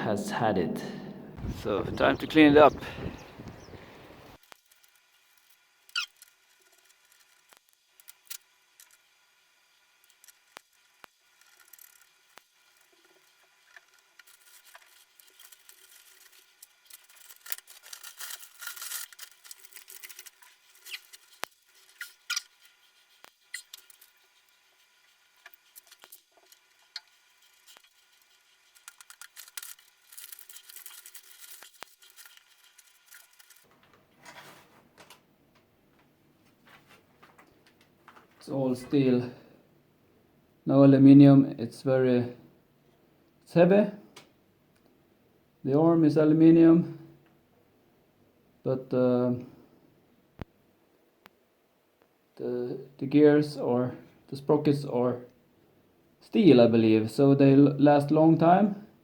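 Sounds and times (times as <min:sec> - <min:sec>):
rubbing and scraping: 0:11.3 - 0:34.9.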